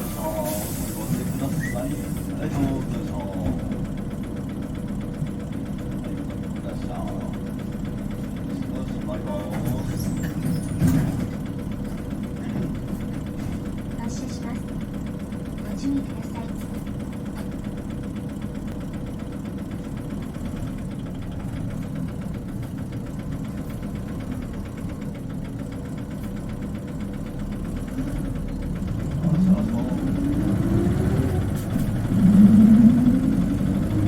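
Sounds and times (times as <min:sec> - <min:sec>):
bus diesel engine: 0:00.0 - 0:34.0.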